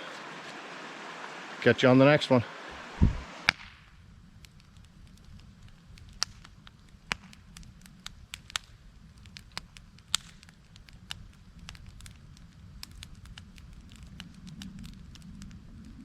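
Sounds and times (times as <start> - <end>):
low rumble: 2.9 - 3.3
sharp crackles and snaps: 3.4 - 16.0.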